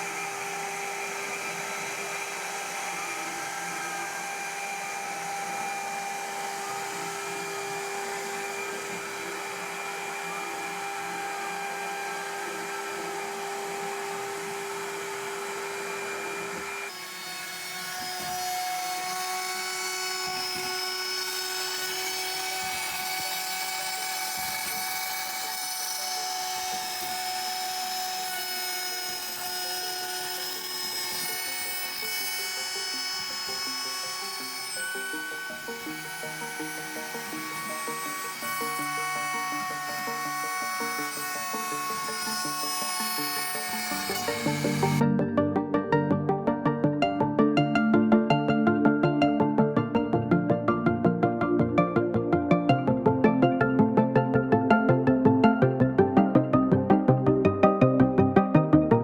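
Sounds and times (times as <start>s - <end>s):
cutter noise: 0.0s - 45.1s
milling machine spindle whine: 0.0s - 45.1s.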